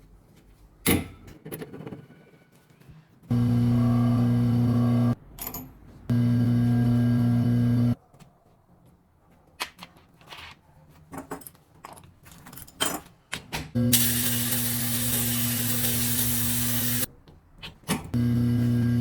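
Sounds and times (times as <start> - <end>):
washing machine motor hum: 3.3 - 5.2, 6.1 - 8.0, 13.8 - 17.1, 18.2 - 19.0.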